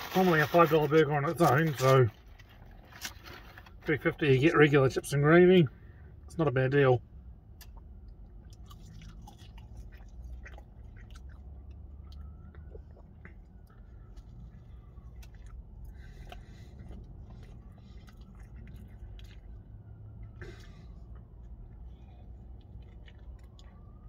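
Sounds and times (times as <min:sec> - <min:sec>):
crunchy chewing and biting: 0:08.4 - 0:24.0.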